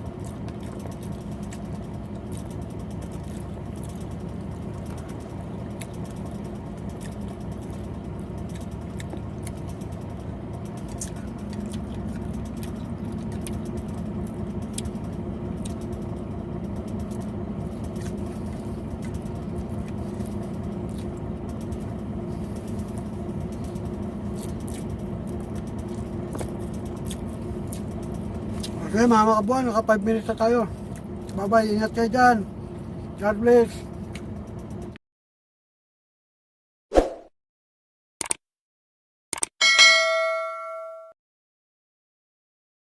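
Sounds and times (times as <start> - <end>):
engine idling: 0.0 - 35.0.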